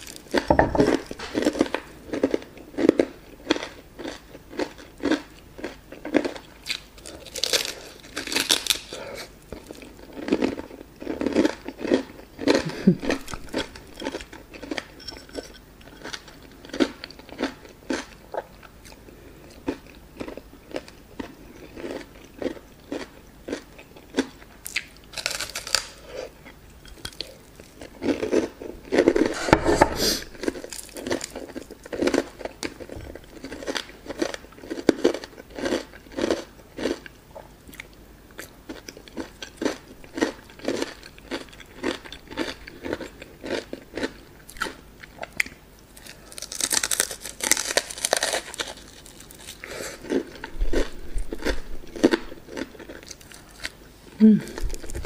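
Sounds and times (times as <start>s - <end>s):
crunchy bites: 0.0s - 9.0s, 24.2s - 26.0s, 39.1s - 55.0s
chewing fried chicken: 0.0s - 15.0s, 15.8s - 29.4s, 30.4s - 55.0s.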